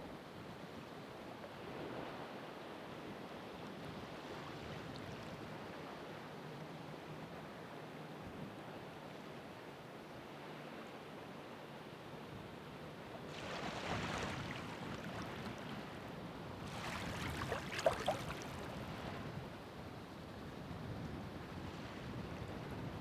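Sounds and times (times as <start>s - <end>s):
sharp crackles of surf: 13.3s - 16.0s, 16.6s - 19.3s
ocean waves breaking: 13.3s - 19.3s.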